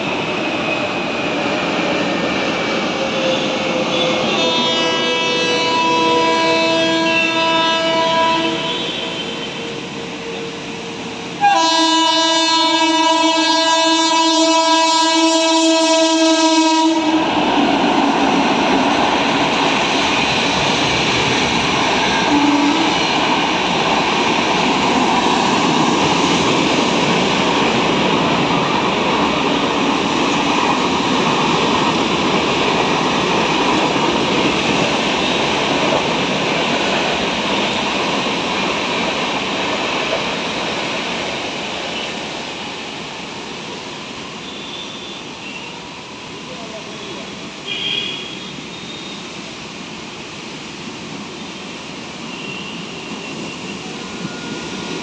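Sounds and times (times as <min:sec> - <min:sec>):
express train rushing and rattling: 0:00.0 - 0:55.0
locomotive horn blast: 0:03.9 - 0:09.8, 0:11.4 - 0:17.4, 0:22.1 - 0:23.0, 0:47.6 - 0:49.1.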